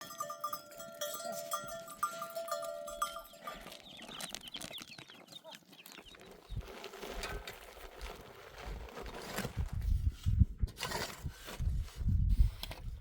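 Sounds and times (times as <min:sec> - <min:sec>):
metal livestock bells clanking: 0:00.0 - 0:04.1.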